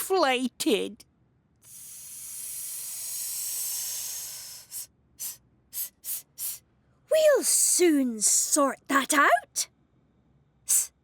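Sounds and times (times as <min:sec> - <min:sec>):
short puffs of escaping air: 0:01.6 - 0:06.6, 0:10.7 - 0:10.9
long air hiss: 0:01.6 - 0:06.7.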